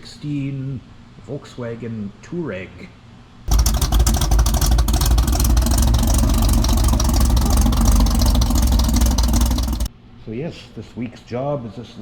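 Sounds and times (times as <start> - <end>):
engine running with rapid rattle: 3.5 - 9.9.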